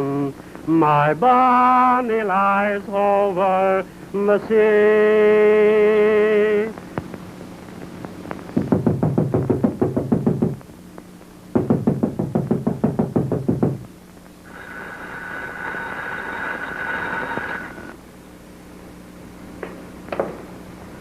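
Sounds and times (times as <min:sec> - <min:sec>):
rapid even knocking: 0:08.6 - 0:10.6, 0:11.6 - 0:13.9
steady high tone: 0:14.5 - 0:18.0.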